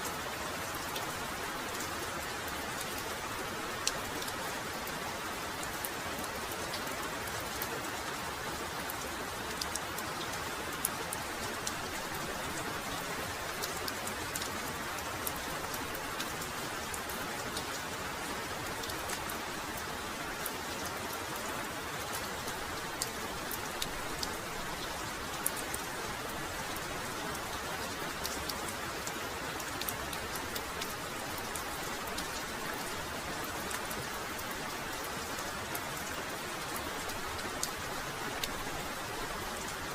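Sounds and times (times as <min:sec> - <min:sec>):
heavy rain falling: 0:00.0 - 0:39.9
raindrops pattering: 0:00.0 - 0:39.9.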